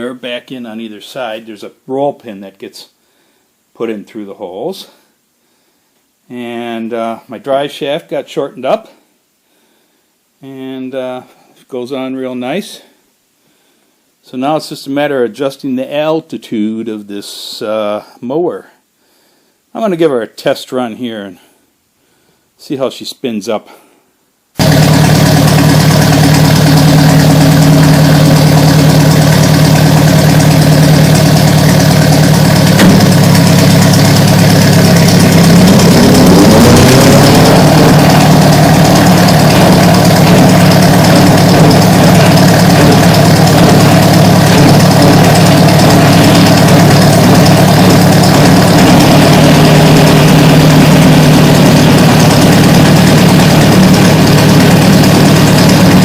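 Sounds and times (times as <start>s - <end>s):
mower rising whine: 24.6s - 56.0s
tractor engine running: 24.6s - 56.0s.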